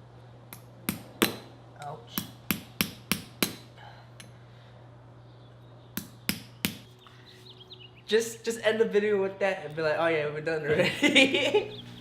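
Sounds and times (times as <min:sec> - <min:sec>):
hammer striking wood: 0:00.9 - 0:01.5.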